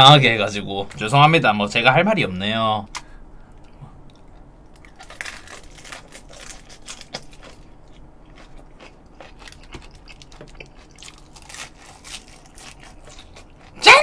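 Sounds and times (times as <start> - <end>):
person chewing crunchy food: 3.6 - 13.8.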